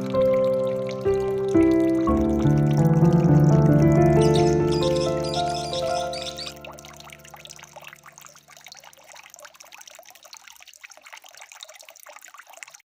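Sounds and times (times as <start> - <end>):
soft sustained music: 0.0 - 8.5
water trickling and splashing: 0.0 - 12.9.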